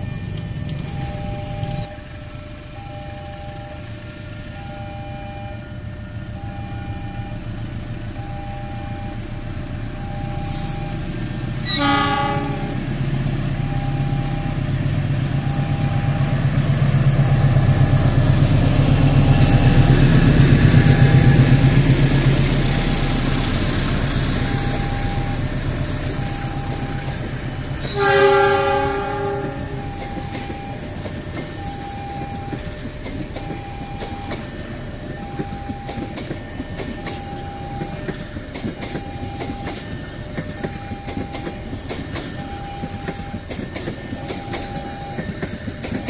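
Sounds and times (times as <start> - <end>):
level crossing warning beeps: 0.0 - 46.0
locomotive engine rumble: 0.0 - 46.0
train wheel noise: 0.0 - 46.0
locomotive horn blast: 11.6 - 13.0, 27.8 - 30.2.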